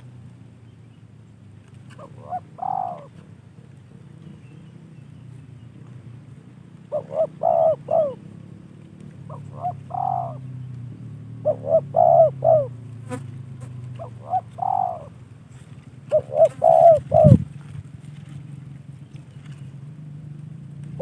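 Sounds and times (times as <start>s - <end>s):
low steady hum: 0.0s - 21.0s
dove cooing: 1.9s - 3.2s, 6.8s - 8.3s, 9.2s - 10.6s, 11.4s - 15.2s, 16.1s - 17.6s.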